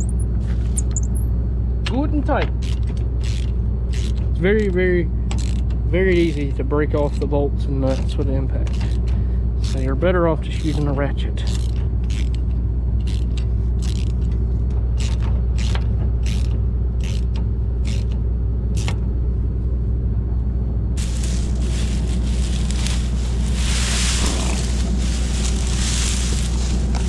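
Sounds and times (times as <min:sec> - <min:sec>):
engine droning: 0:00.0 - 0:27.0
hand ratchet clicking: 0:02.6 - 0:07.2, 0:07.9 - 0:09.9, 0:10.6 - 0:14.4, 0:15.0 - 0:18.2, 0:18.8 - 0:19.0.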